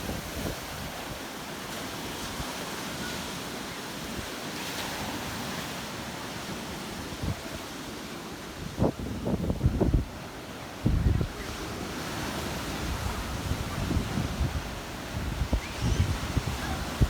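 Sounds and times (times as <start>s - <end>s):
wind rumbling on microphone: 0.0s - 1.3s, 8.6s - 17.0s
sea surf washing in: 0.0s - 17.0s.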